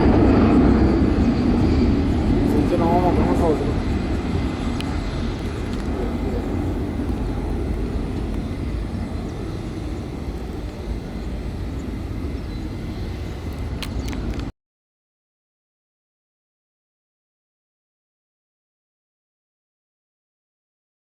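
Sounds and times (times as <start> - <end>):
jet engines rumbling: 0.0 - 14.5
faint clicks: 4.5 - 14.5.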